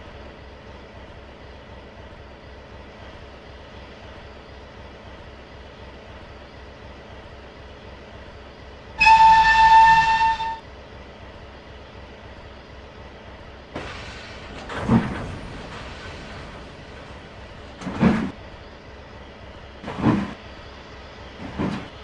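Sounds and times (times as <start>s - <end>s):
locomotive whistle: 9.0s - 10.6s, 21.4s - 21.9s.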